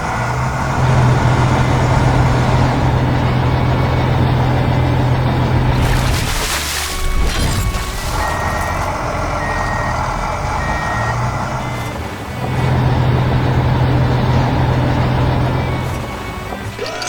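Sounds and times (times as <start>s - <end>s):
truck engine running: 0.0s - 17.0s
reversing beeper beeps: 7.4s - 11.8s.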